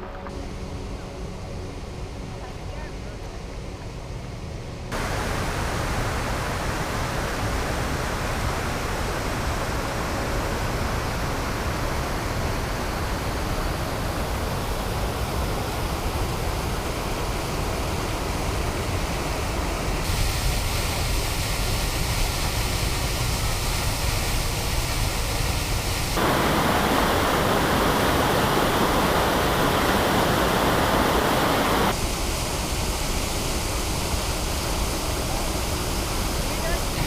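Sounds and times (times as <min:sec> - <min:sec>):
waterfall rushing: 0:05.0 - 0:16.5, 0:20.1 - 0:37.0.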